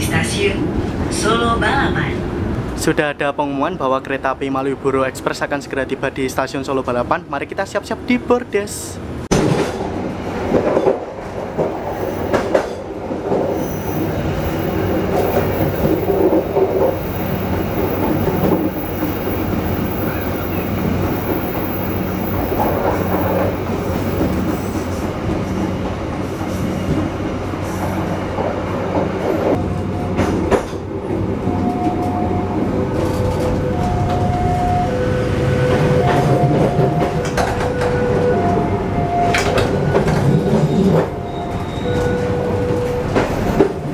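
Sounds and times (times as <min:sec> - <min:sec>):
wheels rumbling on rail: 0:09.0 - 0:43.9
wheels clacking over rail joints: 0:09.4 - 0:26.2
high wheel squeal: 0:13.4 - 0:25.0, 0:39.8 - 0:43.5.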